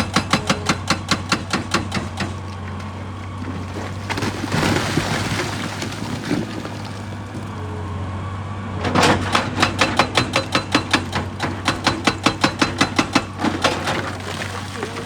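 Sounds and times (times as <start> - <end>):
hydraulic breaker hammering rock: 0.0 - 7.6, 8.8 - 15.0
excavator diesel engine running: 0.0 - 15.0.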